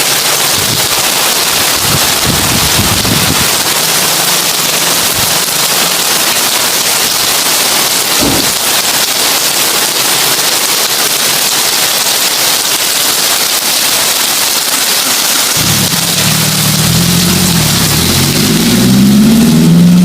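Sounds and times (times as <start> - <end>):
heavy rain on a tin roof: 0.0 - 20.0
short low thump: 8.2 - 8.6.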